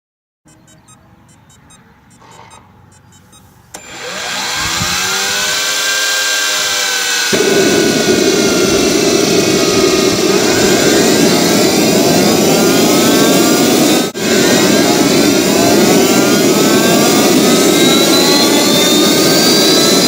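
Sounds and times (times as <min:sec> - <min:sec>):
faint ticking: 0:00.5 - 0:03.8
turbine whine rising: 0:03.2 - 0:20.0
turbine rushing: 0:03.5 - 0:20.0.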